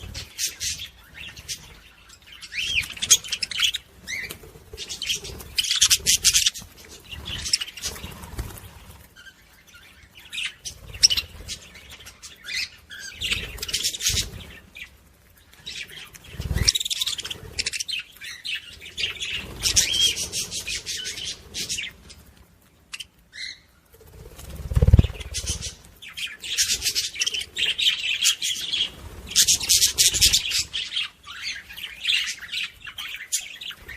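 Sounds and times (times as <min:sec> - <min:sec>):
parrots chirping and chattering: 0:00.0 - 0:33.9
wing flutters: 0:02.7 - 0:09.3, 0:23.9 - 0:31.0.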